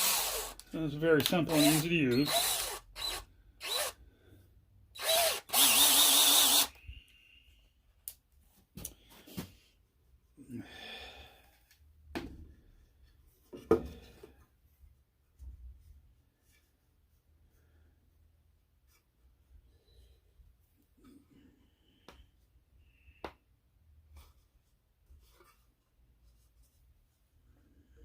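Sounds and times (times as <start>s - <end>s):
power drill running: 0.0s - 0.6s, 1.2s - 4.0s, 5.0s - 6.8s.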